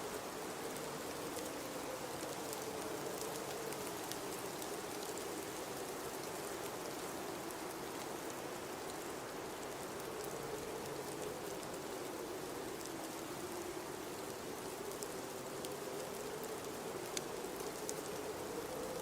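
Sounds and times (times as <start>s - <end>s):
faint scattered ticks: 0.0s - 19.0s.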